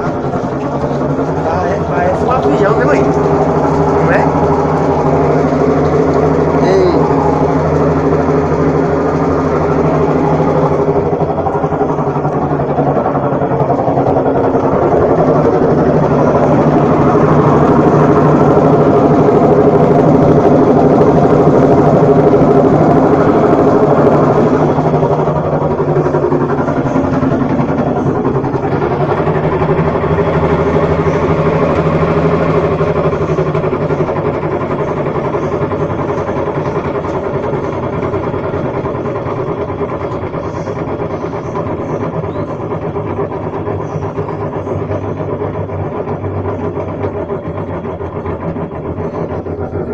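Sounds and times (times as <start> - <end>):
washing machine motor drone: 0.0 - 49.9.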